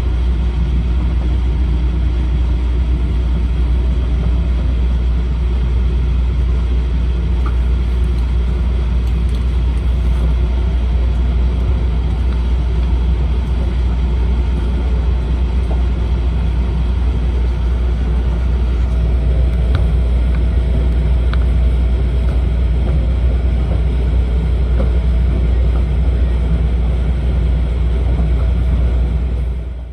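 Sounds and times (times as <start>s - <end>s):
train cabin rumble: 0.0s - 29.9s.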